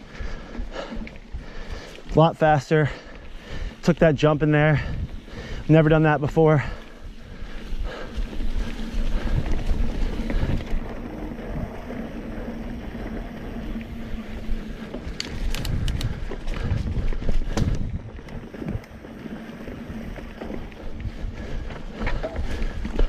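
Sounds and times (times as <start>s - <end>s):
bike tyres rolling on dirt: 0.0s - 23.0s
wind buffeting microphone: 3.1s - 23.0s
sharp clicks and rattles: 14.9s - 19.0s.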